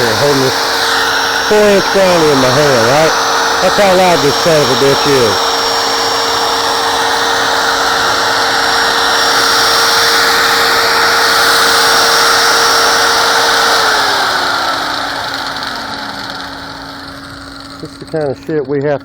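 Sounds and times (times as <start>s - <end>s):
angle grinder running: 0.0s - 19.0s
paper shredder humming: 0.0s - 19.0s.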